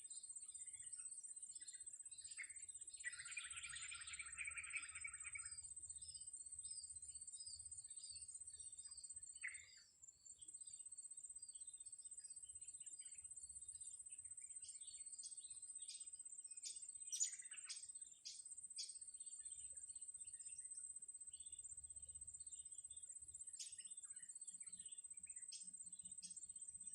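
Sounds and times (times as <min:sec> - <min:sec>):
small birds chirping: 0:00.0 - 0:26.9
sharp repeated bird calls: 0:03.1 - 0:05.5.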